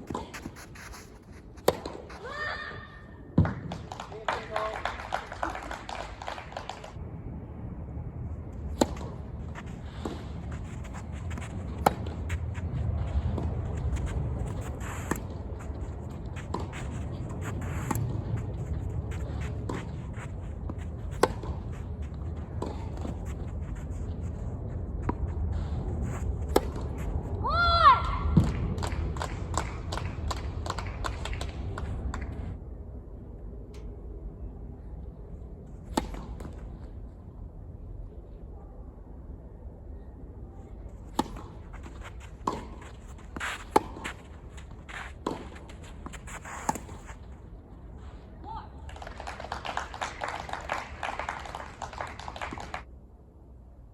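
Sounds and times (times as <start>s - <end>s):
tennis ball hit and bouncing: 0.0s - 2.3s, 8.7s - 24.3s, 26.4s - 27.1s, 36.0s - 36.6s, 41.1s - 47.2s
steady low rumble: 6.9s - 48.9s.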